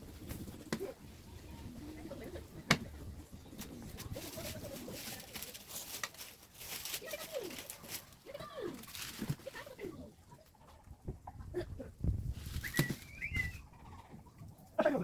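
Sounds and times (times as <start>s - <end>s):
light irregular crackling: 0.0s - 15.0s
birds cooing: 12.6s - 15.0s.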